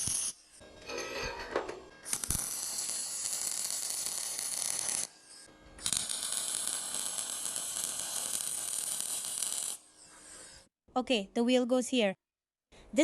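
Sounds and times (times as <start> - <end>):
welding arc crackling hiss: 0.0 - 0.4, 2.1 - 10.6.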